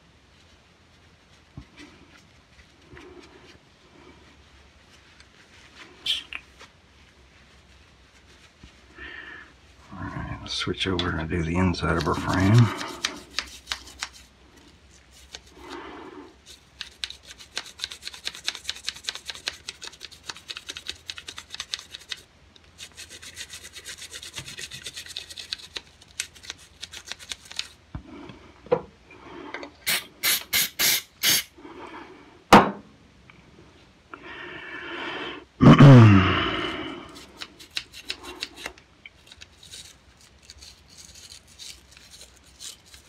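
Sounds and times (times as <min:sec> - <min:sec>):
toothbrush scrubbing metal: 0:11.7 - 0:14.3, 0:15.0 - 0:15.8, 0:16.4 - 0:27.8, 0:37.1 - 0:43.0.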